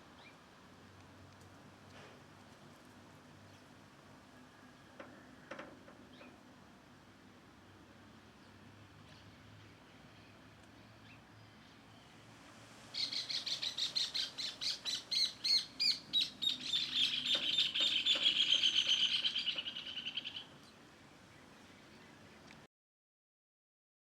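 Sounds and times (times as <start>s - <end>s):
songbird singing: 0.2s - 0.4s, 3.4s - 6.4s, 8.3s - 12.2s, 12.9s - 22.6s.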